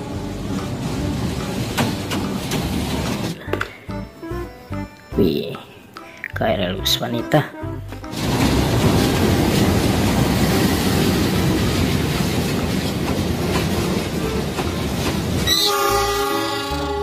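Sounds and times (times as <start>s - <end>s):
train wheels rumbling on rails: 0.0s - 4.4s, 8.0s - 17.0s.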